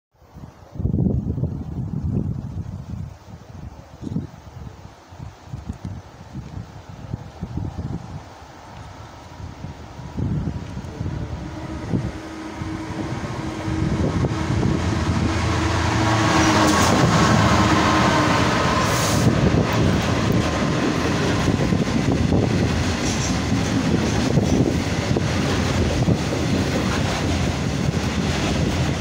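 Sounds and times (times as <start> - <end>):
diesel locomotive passing: 10.0 - 29.0
train wheels clicking over rail joints: 18.4 - 29.0.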